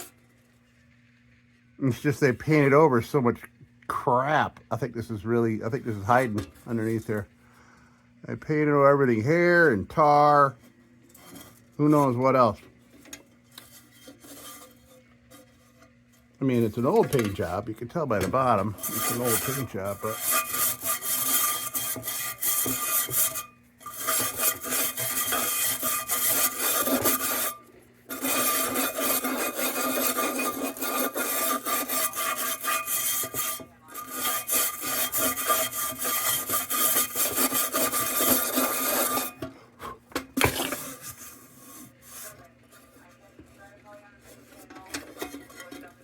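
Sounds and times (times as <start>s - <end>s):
scraping paint off metal: 4.7s - 7.3s, 8.4s - 46.0s
faint handling sounds: 9.6s - 20.5s, 37.9s - 46.0s.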